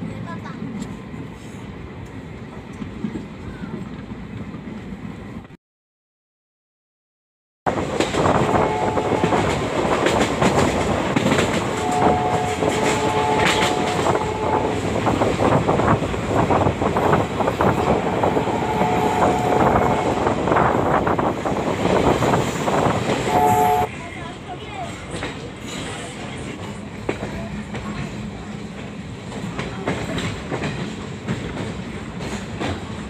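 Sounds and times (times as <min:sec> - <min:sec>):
train running noise: 0:00.0 - 0:05.5, 0:07.7 - 0:33.0
locomotive horn blasts: 0:08.4 - 0:09.6, 0:11.7 - 0:14.8, 0:17.8 - 0:20.3, 0:23.3 - 0:23.9
train wheels clattering over rail joints: 0:09.2 - 0:18.1, 0:24.8 - 0:33.0.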